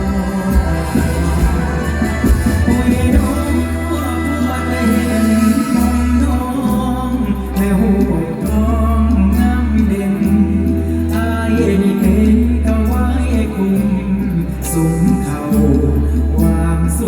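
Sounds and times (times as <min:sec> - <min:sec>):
held bass notes: 0:00.0 - 0:17.0
person singing a melody: 0:00.0 - 0:17.0.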